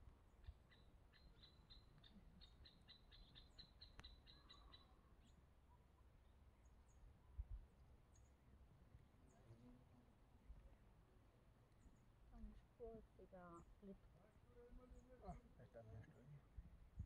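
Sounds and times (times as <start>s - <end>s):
faint bird calls: 0.3s - 6.1s.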